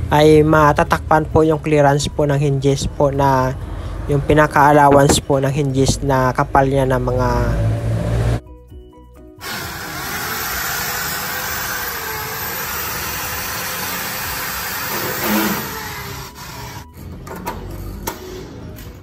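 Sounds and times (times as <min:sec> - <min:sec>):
cordless drill drilling into metal: 0:09.4 - 0:16.8.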